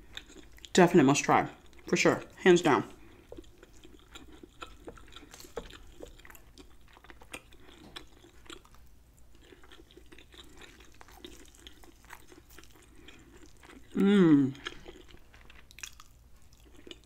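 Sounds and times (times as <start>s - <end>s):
mouth chewing clicks and smacks: 3.1s - 14.0s, 14.6s - 17.0s.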